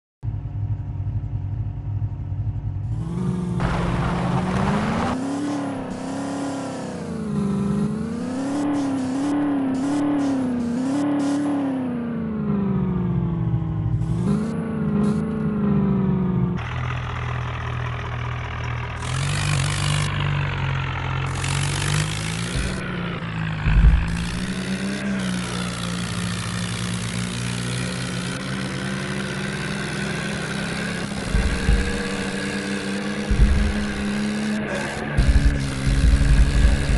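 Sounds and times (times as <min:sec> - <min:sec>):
tractor engine revving: 0:02.8 - 0:36.9
loud knock: 0:33.3 - 0:34.0.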